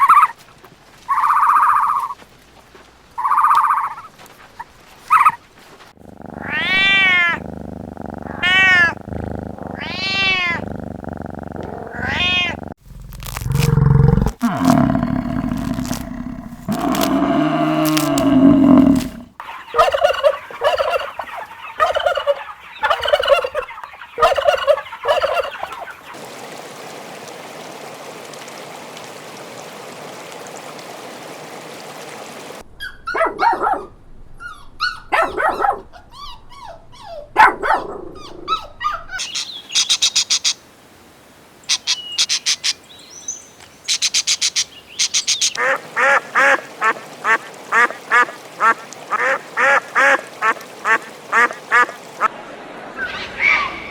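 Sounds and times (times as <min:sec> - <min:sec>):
poultry calling: 0:06.1 - 0:25.8
ducks quacking rapidly: 0:45.5 - 0:52.0.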